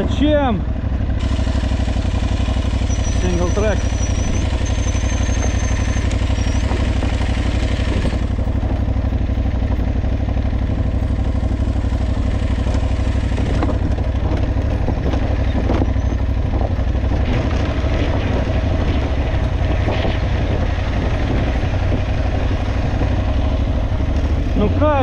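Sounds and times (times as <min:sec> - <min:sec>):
motorcycle engine at low revs: 0:00.0 - 0:25.0
motorcycle knocks and clatter: 0:06.1 - 0:24.5.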